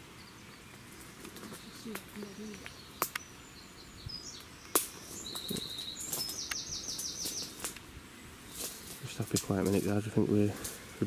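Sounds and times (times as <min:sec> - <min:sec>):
small birds chirping and trilling: 0:00.0 - 0:11.0
sharp snaps: 0:01.2 - 0:03.3, 0:04.4 - 0:07.9.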